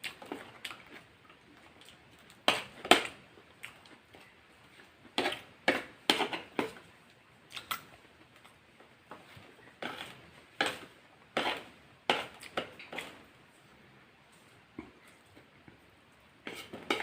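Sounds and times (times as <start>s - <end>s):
chewing crunches and smacks: 0.0s - 2.5s, 3.6s - 4.3s, 7.5s - 8.6s.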